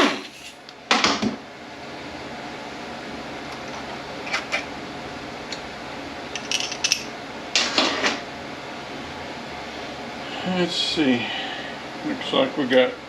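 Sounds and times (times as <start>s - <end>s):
metal tools clinking and clanking: 6.4s - 7.1s.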